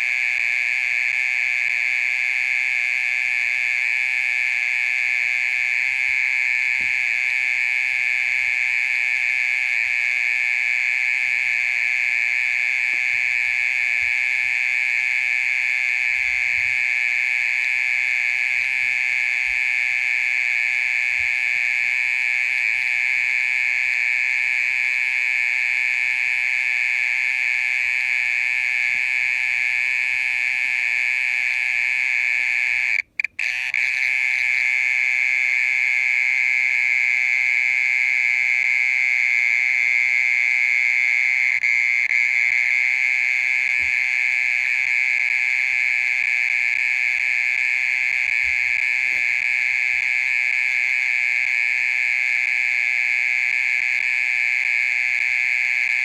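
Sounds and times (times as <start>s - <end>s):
mole cricket trilling: 0.0s - 56.0s.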